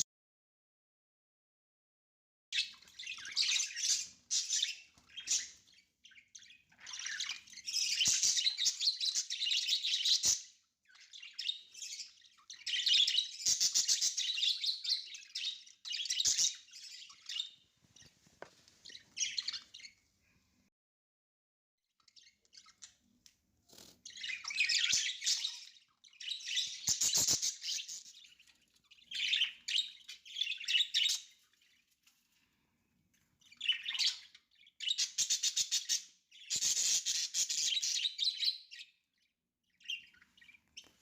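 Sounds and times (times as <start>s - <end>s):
budgerigars chirping and warbling: 2.6s - 18.2s, 18.8s - 20.0s, 22.0s - 32.0s, 33.1s - 39.1s, 39.7s - 41.0s.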